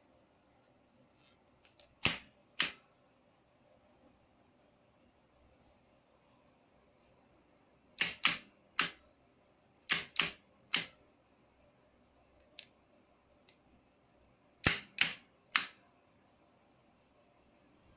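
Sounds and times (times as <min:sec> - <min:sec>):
sharp mechanical clicks: 0:08.0 - 0:09.0, 0:09.9 - 0:11.0, 0:14.6 - 0:15.8.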